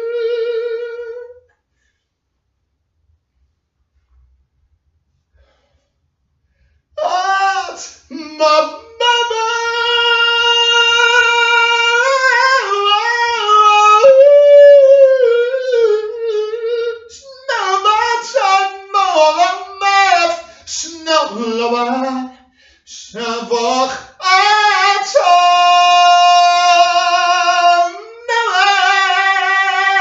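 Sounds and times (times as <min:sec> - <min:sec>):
high voice singing wordlessly: 0:00.0 - 0:01.4, 0:07.0 - 0:30.0.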